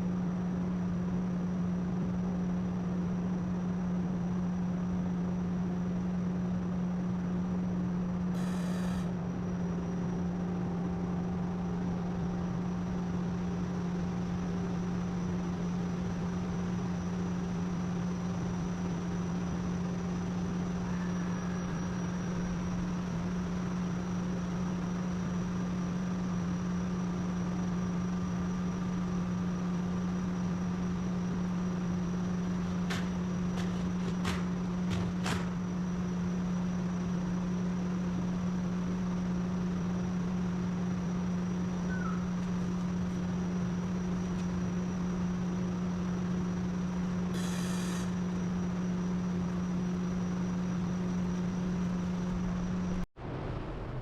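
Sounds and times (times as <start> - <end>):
low machine hum: 0.0 - 54.0.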